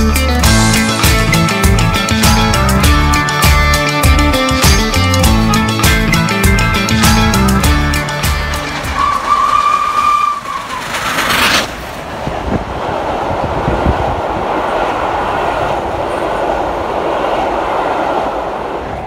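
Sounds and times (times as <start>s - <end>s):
train rolling with low rumble: 0.0s - 19.0s
train horn blast: 8.9s - 10.8s.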